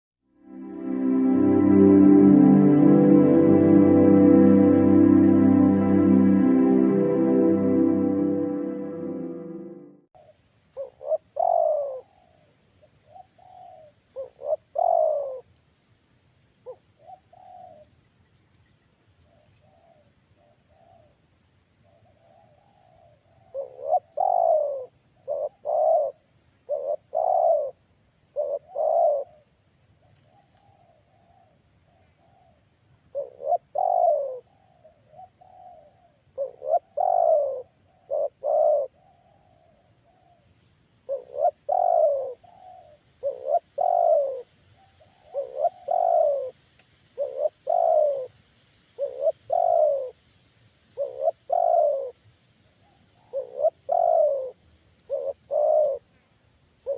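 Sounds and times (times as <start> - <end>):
doves cooing: 10.8 - 12.5, 13.1 - 15.5, 22.3 - 27.8, 28.4 - 29.5, 32.2 - 40.4, 41.1 - 46.6, 47.2 - 48.3, 49.0 - 50.2, 51.0 - 52.2, 52.8 - 56.1.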